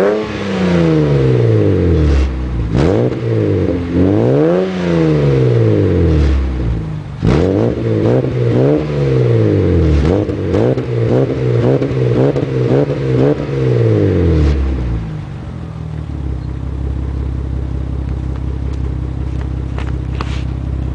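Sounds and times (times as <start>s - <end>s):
engine revving with throttle blips: 0.0s - 15.3s.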